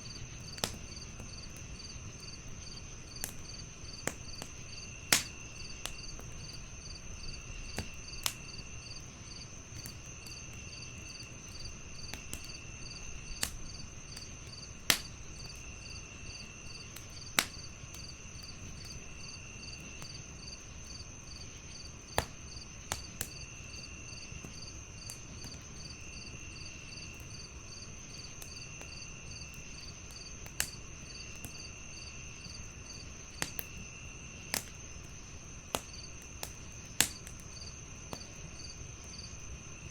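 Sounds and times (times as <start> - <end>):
crickets chirping: 0.0 - 39.9
wood fire crackling and popping: 0.1 - 39.9.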